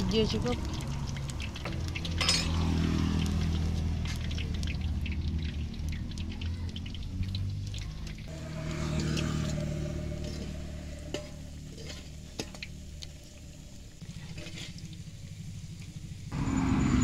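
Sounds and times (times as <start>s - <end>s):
dough sizzling in hot oil: 0.0s - 17.0s
low engine-like hum: 0.0s - 17.0s
metal tongs clinking on pan: 2.0s - 2.7s.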